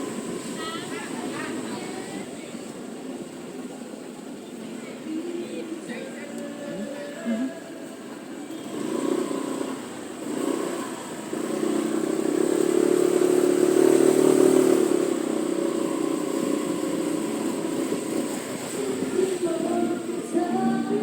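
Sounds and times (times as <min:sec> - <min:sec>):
motor scooter engine running: 0:00.0 - 0:02.6, 0:08.5 - 0:21.0
street traffic: 0:00.0 - 0:21.0.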